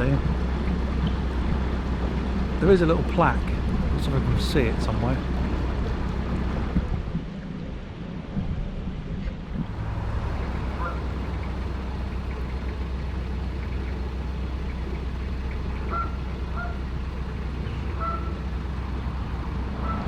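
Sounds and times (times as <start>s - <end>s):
diesel engine running low drone: 0.0s - 20.0s.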